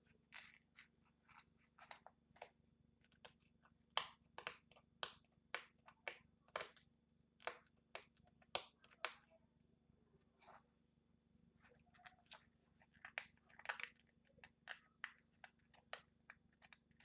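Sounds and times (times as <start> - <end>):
packaging clicks and crinkles: 11.9 - 17.0.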